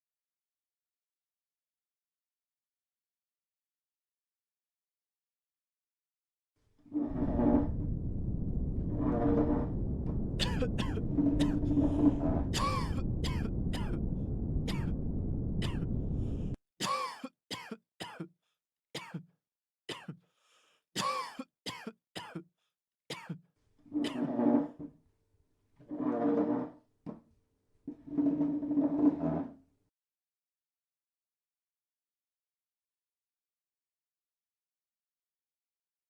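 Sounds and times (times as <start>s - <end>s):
dense low rumble: 7.1s - 16.6s
person coughing: 10.4s - 11.7s, 12.6s - 14.0s, 14.7s - 14.9s, 15.6s - 15.9s, 16.8s - 18.3s, 19.0s - 19.3s, 19.9s - 20.2s, 21.0s - 22.5s, 23.1s - 23.4s
throat clearing: 10.4s - 11.7s, 12.6s - 14.0s, 16.8s - 18.3s, 19.0s - 19.3s, 19.9s - 20.2s, 21.0s - 22.5s, 23.1s - 23.5s.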